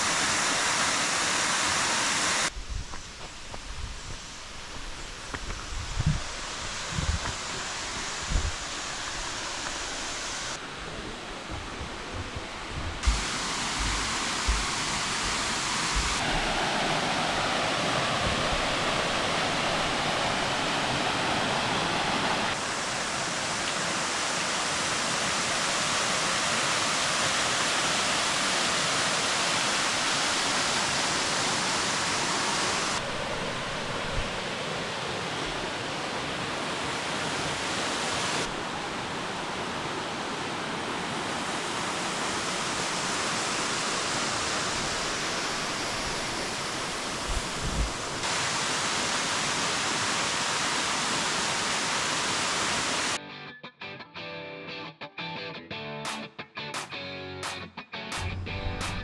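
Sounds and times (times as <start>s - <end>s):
waterfall rushing: 0.0s - 2.5s, 6.2s - 53.2s.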